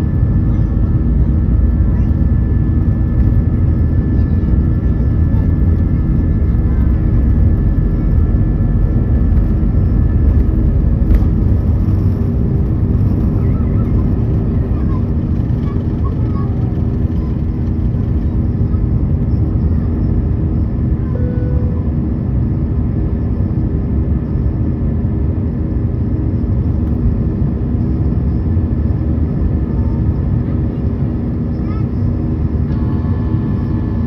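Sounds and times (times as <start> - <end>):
deep roar of jet engines: 0.0 - 34.0
high whine: 20.9 - 22.2.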